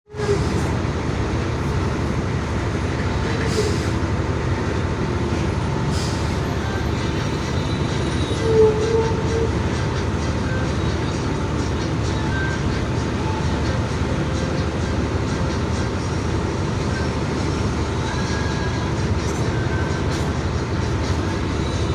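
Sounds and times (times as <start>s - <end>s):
road noise: 0.1s - 21.9s
truck engine rumble: 0.1s - 21.9s.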